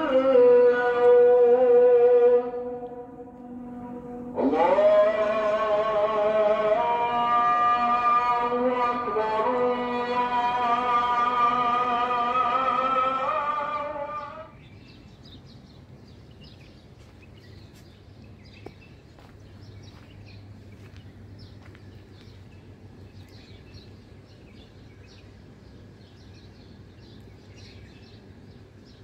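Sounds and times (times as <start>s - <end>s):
low outdoor hum: 0.0s - 29.0s
small birds chirping: 14.1s - 29.0s.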